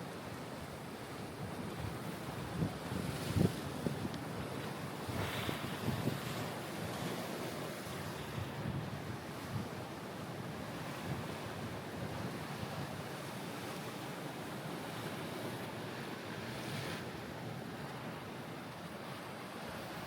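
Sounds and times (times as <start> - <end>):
sea waves washing on shore: 0.0 - 20.0
wind on microphones: 2.5 - 4.1, 5.1 - 6.2.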